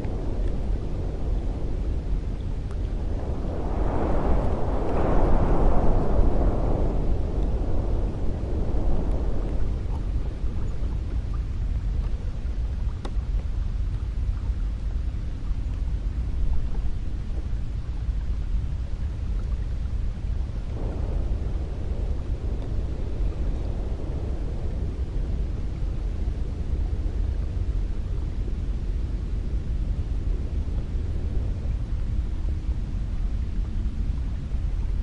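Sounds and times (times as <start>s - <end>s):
wind blowing with deep rumble: 0.0s - 35.0s.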